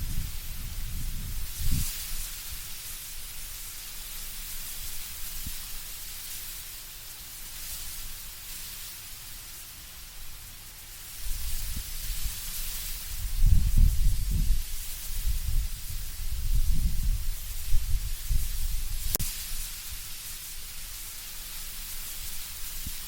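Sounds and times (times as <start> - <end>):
low rumble of wind gust: 0.0 - 3.6, 11.2 - 20.1
wind rustling leaves: 0.0 - 23.0.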